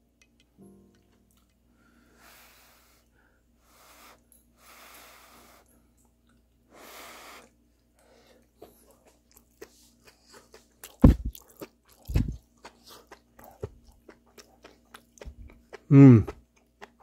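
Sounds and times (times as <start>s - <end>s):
person breathing: 1.7s - 5.9s, 6.7s - 8.7s
wet chewing clicks: 8.6s - 17.0s
low thumps: 11.0s - 11.3s.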